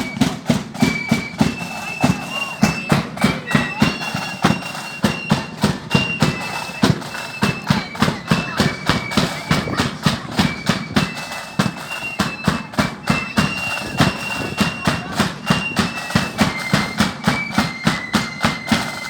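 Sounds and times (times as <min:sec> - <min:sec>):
hard-hitting drumbeat: 0:00.0 - 0:19.0
marching band playing: 0:00.0 - 0:19.0
shrill high melody: 0:00.0 - 0:19.0.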